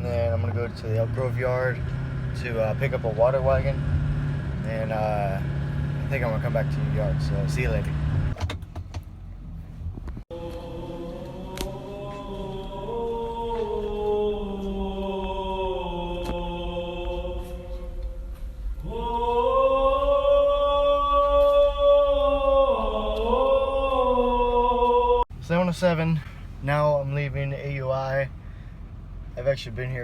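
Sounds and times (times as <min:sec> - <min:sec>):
choir-like chant of held notes: 0:10.3 - 0:25.2.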